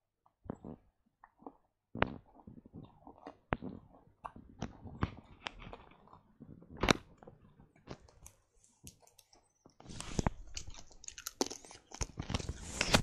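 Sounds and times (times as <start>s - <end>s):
child chewing crunchy candy: 0.2s - 12.6s
wet mouth clicks: 0.4s - 5.6s.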